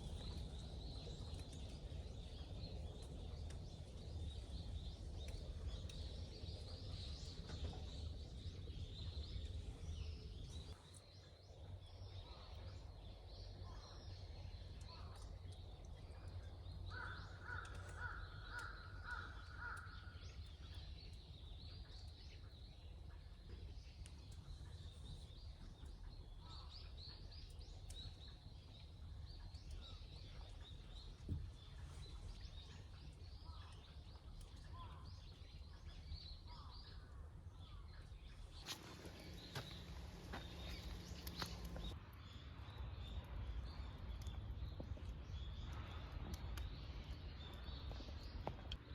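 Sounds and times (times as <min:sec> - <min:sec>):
low steady rumble: 0:18.2 - 0:48.9
birds chirping: 0:38.3 - 0:42.4.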